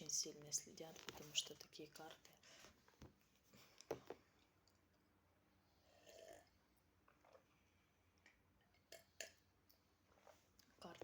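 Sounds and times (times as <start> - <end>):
soft rustle or breath: 2.3 - 3.9.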